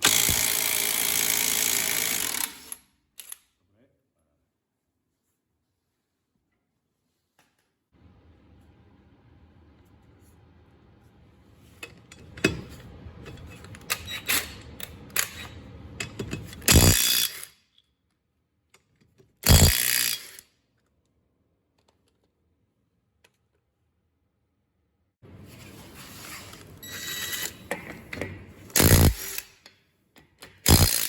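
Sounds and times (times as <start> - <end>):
impact wrench bursts: 0.0 - 2.8, 16.6 - 17.5, 19.4 - 20.4, 28.8 - 29.6, 30.6 - 31.0
tool handling clicks and knocks: 11.8 - 16.8.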